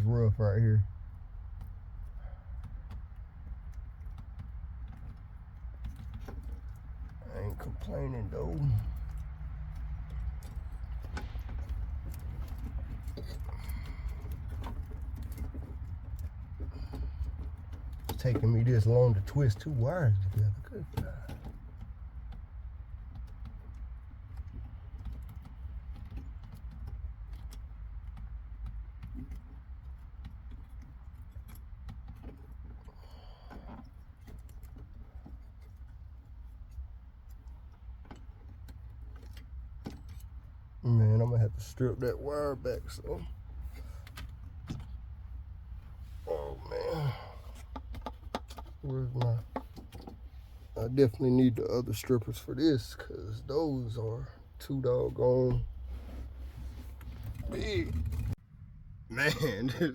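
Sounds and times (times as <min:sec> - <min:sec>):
wires clicking and rattling: 0:01.0 - 0:58.4
steady low hum: 0:28.9 - 0:59.9.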